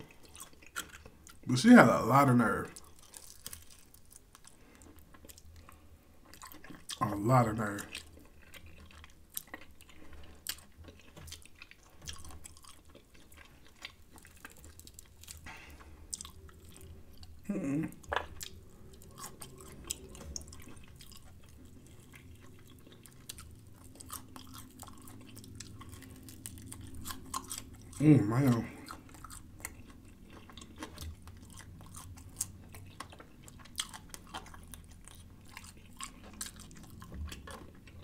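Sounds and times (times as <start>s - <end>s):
wet chewing and mouth smacks: 0.0s - 1.5s, 2.7s - 38.0s
person humming: 17.5s - 18.0s.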